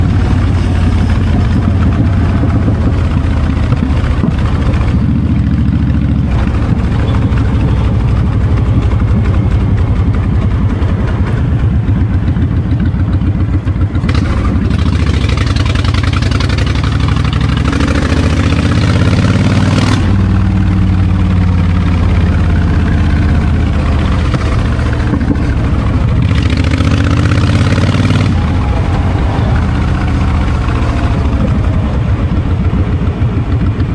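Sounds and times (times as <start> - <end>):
wind on microphone: 0.0 - 13.7, 28.2 - 33.9
motorcycle engine revving: 0.0 - 33.9.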